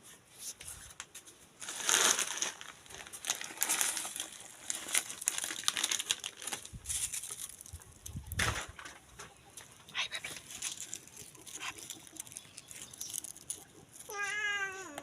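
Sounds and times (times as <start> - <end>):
light rustling and crinkling: 0.0 - 15.0
drawn-out pet animal call: 9.3 - 15.0.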